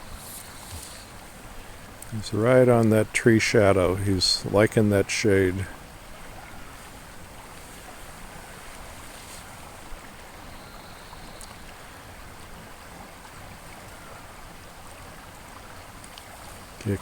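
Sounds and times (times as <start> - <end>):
river water rushing: 0.0 - 17.0
faint click: 11.3 - 11.6.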